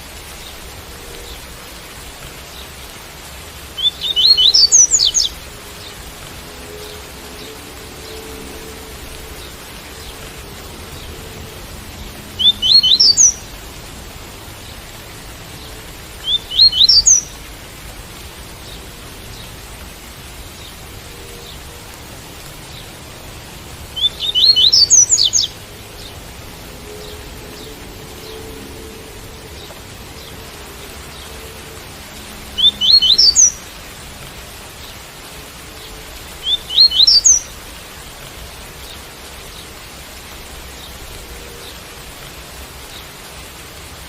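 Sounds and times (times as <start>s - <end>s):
rain hiss: 0.0s - 44.0s
bird singing high rising notes: 3.8s - 6.0s, 12.3s - 13.5s, 16.2s - 17.3s, 24.0s - 26.1s, 32.5s - 33.7s, 36.4s - 37.5s.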